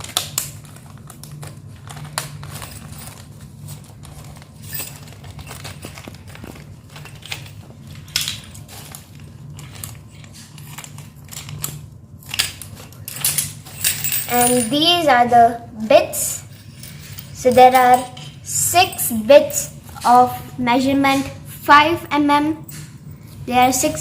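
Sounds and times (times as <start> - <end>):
packaging rustling: 0.0 - 14.2
steady low hum: 0.0 - 24.0
small metal parts clinking: 1.9 - 9.0, 9.6 - 14.8, 16.5 - 19.8.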